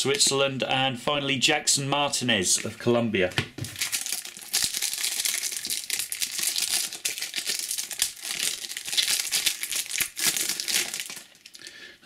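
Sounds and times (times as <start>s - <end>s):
wrapper crinkling and tearing: 3.7s - 11.6s.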